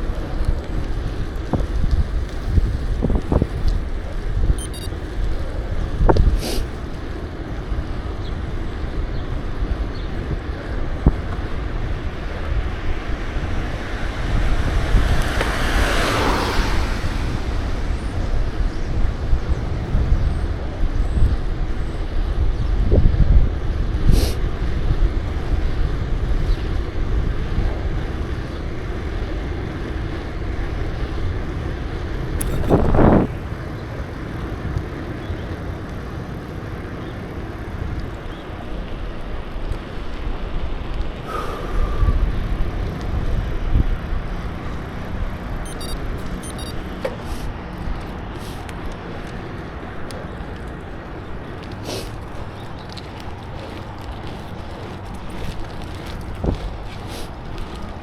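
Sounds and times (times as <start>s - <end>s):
road and traffic rumble: 0.0s - 58.0s.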